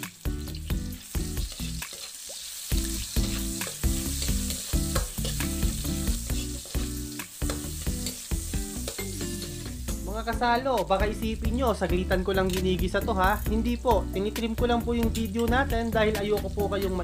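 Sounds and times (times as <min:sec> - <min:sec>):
food sizzling in hot oil: 0:00.0 - 0:17.0
metal ladle scraping a wok: 0:01.4 - 0:09.6.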